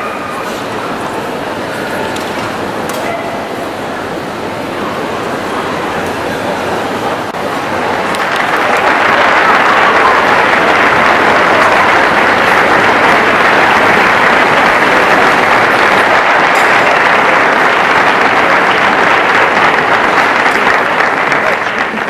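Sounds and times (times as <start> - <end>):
audience applauding: 5.0 - 22.0.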